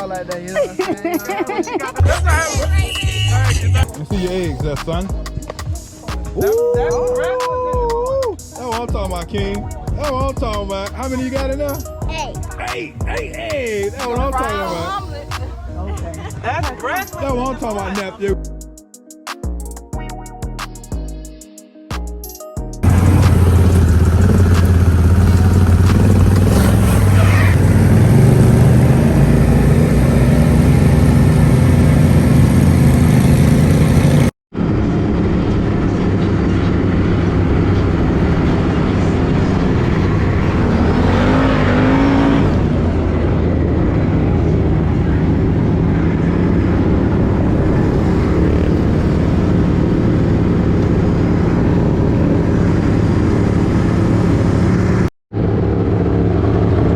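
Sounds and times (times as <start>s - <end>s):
off-road vehicle engine running: 22.8s - 56.9s.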